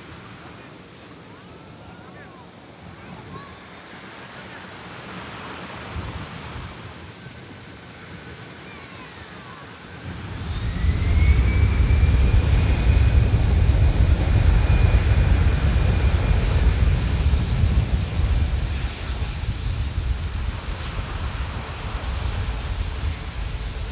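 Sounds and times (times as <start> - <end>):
high jet engine whine: 0.0 - 23.9
jet engine rumble: 9.3 - 23.9.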